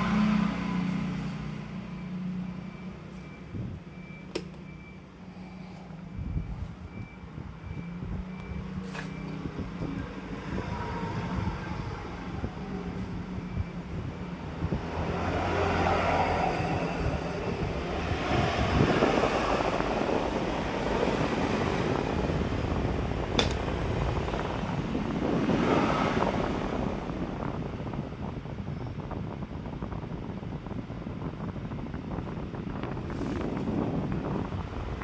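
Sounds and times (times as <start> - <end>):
sharp click: 4.3 - 4.6, 23.4 - 23.6
electric fan rushing air: 7.4 - 35.0.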